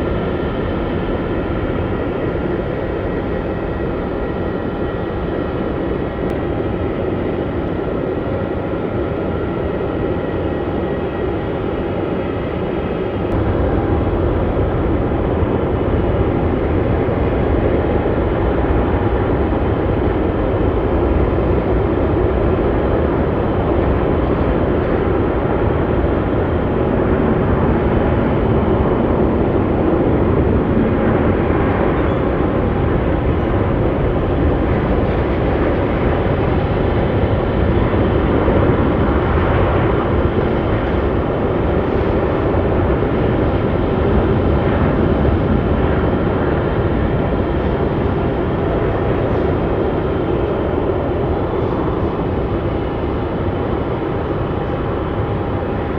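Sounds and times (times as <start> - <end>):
jet engines rumbling: 0.0 - 55.9.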